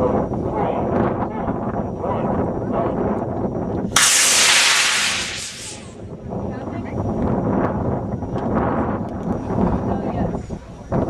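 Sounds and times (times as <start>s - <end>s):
rocket motor hissing: 4.0s - 6.0s.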